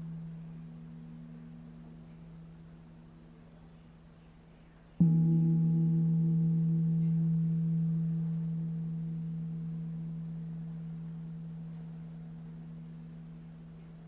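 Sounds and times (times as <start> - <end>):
singing bowl ringing: 5.0 - 14.0.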